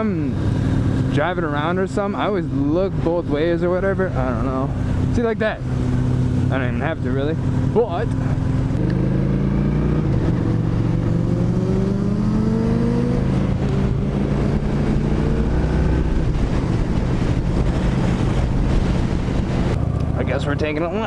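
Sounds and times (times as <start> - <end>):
motorcycle engine accelerating: 0.0 - 21.0
wind noise on microphone: 8.4 - 20.1.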